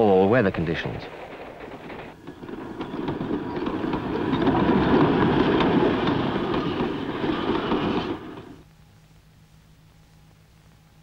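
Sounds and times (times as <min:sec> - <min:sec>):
train passing: 0:00.0 - 0:08.7
wheels clattering over rail joints: 0:01.1 - 0:08.6.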